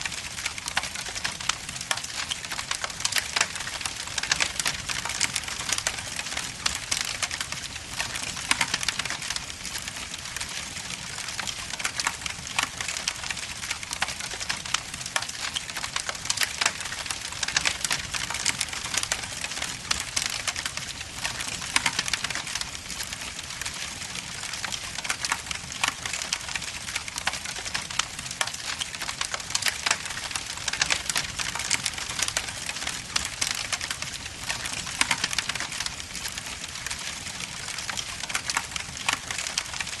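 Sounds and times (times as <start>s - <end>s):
log fire crackling and popping: 0.0s - 40.0s.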